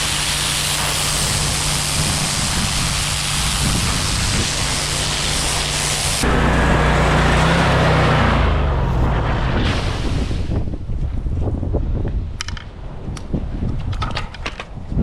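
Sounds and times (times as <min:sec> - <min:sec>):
water spray hiss: 0:00.0 - 0:06.3
pressure washer engine: 0:00.0 - 0:10.5
low rumble: 0:06.2 - 0:12.2.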